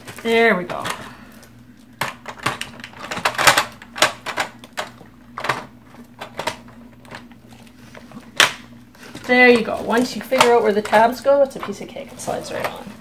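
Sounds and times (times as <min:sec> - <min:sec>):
plastic parts clicking: 0:02.0 - 0:07.3, 0:08.4 - 0:13.0.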